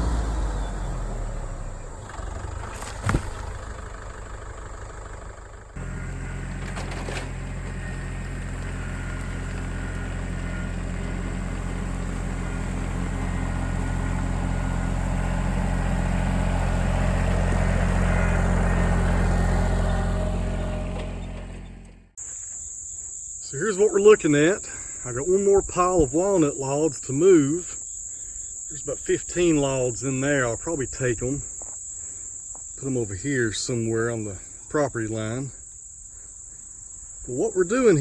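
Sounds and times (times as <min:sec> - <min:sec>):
tractor engine running: 0:00.0 - 0:22.2.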